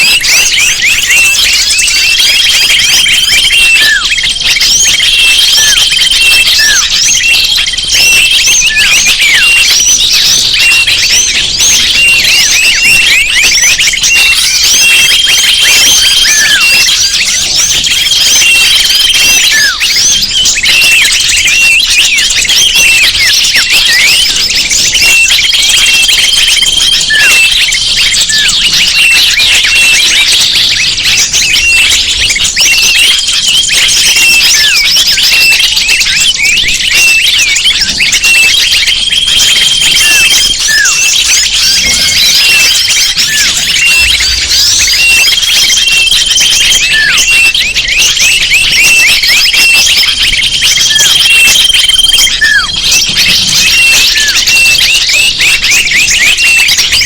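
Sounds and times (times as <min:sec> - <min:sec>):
small birds chirping and twittering: 0:00.0 - 0:57.0.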